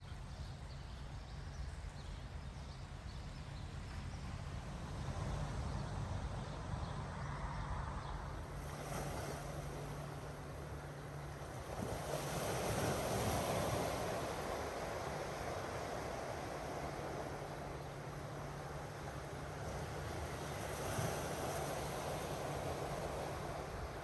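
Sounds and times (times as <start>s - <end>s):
wind rumbling on microphone: 0.0s - 24.0s
ocean surf washing in: 8.6s - 24.0s.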